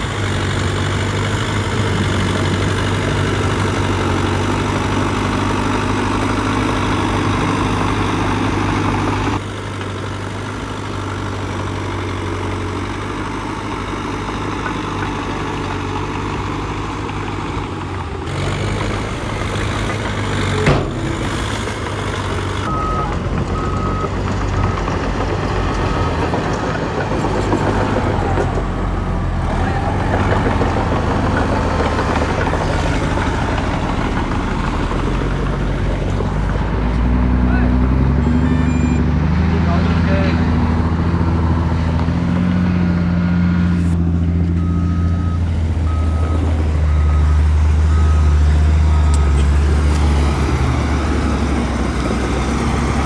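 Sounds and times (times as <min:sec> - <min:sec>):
bulldozer diesel engine: 0:00.0 - 0:53.0
sharp knock: 0:20.4 - 0:22.7.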